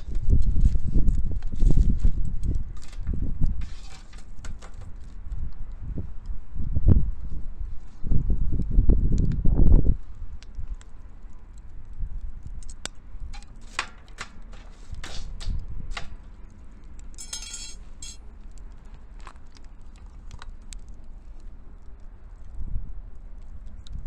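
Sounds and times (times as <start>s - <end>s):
wood fire crackling and popping: 0.0s - 6.4s, 8.6s - 24.0s
metallic rattle: 17.2s - 18.2s.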